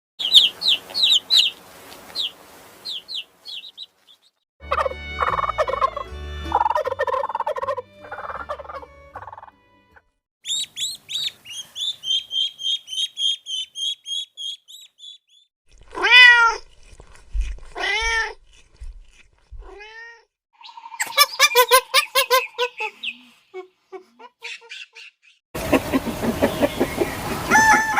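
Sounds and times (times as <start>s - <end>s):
high animal chirps: 0.2s - 1.6s, 2.2s - 4.2s, 10.4s - 15.5s, 20.6s - 23.4s.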